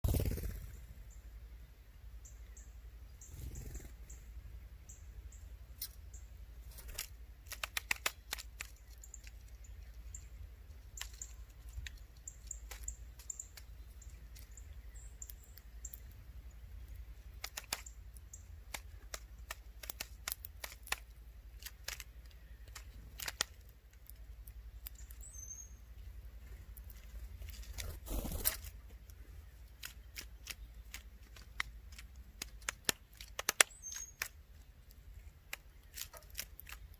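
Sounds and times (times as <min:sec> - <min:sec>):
woodpecker pecking at wood: 0:06.7 - 0:10.1, 0:10.8 - 0:16.1, 0:17.2 - 0:25.2, 0:26.7 - 0:36.9.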